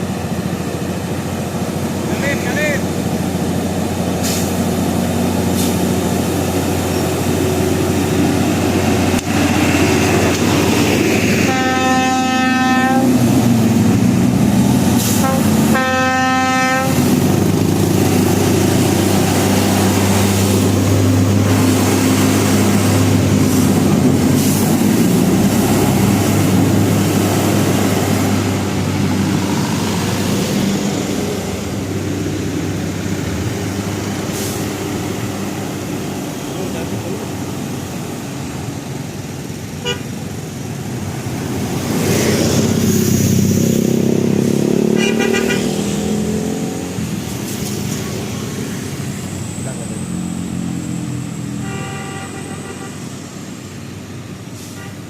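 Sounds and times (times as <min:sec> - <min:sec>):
truck diesel engines labouring: 0:00.0 - 0:55.0
air horn blasts: 0:11.4 - 0:13.2, 0:15.0 - 0:17.1, 0:39.8 - 0:40.1, 0:44.9 - 0:45.7, 0:51.6 - 0:53.1, 0:54.6 - 0:55.0.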